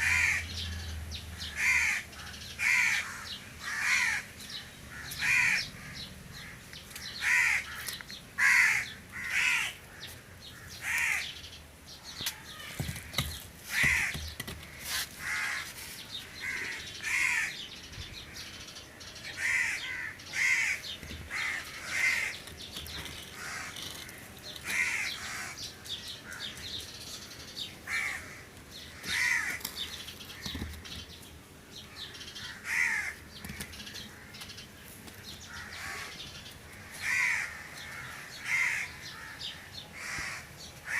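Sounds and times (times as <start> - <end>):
crows cawing: 0.0 - 11.4, 12.1 - 17.7, 19.3 - 26.8, 27.8 - 30.8, 31.9 - 34.6, 35.4 - 40.9.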